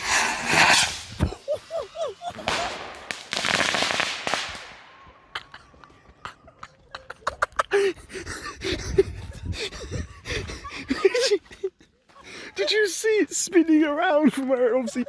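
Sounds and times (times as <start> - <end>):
firework fizzing and crackling: 0.0 - 5.0.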